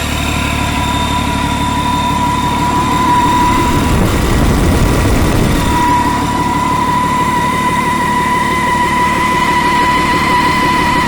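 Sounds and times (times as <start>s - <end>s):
diesel engine running: 0.0s - 11.0s
high-pitched whine: 0.0s - 11.0s.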